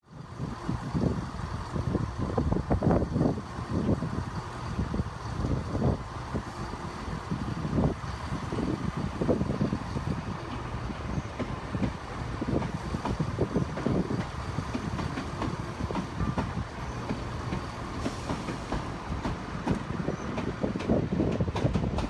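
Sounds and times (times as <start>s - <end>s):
train rumble: 0.0s - 22.0s
wheels clacking over rail joints: 9.2s - 22.0s.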